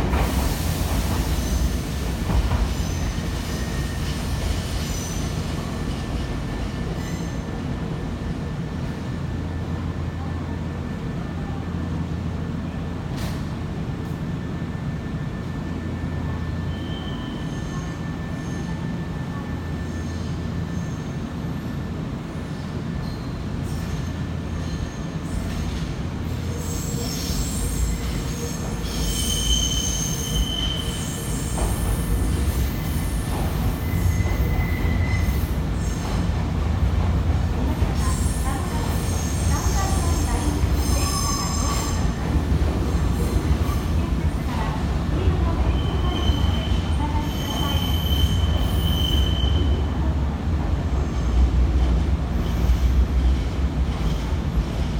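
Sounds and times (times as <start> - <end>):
electric train rumbling: 0.0 - 54.9
train wheel squeals: 0.2 - 7.6, 14.5 - 36.3, 37.9 - 42.3, 45.6 - 50.0, 52.3 - 54.9
high wheel squeal: 26.4 - 33.2, 39.0 - 42.1, 45.8 - 49.8.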